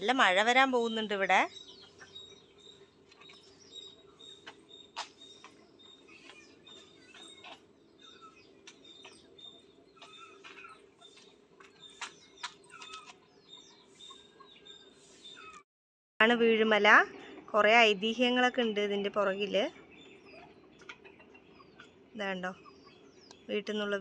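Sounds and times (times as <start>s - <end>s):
steady low hum: 0.0s - 15.4s
birds chirping: 0.0s - 15.6s, 16.6s - 24.0s.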